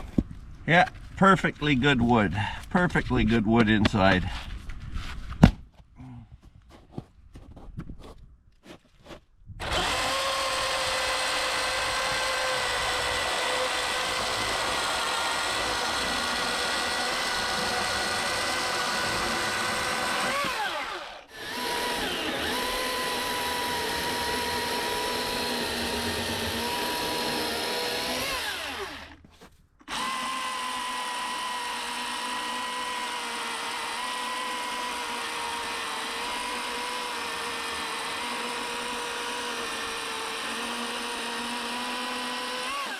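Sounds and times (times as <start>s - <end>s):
battery chainsaw cutting log: 9.6s - 29.3s, 29.9s - 42.9s.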